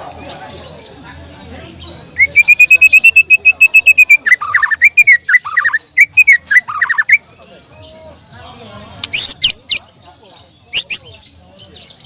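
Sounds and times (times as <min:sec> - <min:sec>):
bird singing whistled notes: 0:02.1 - 0:07.3.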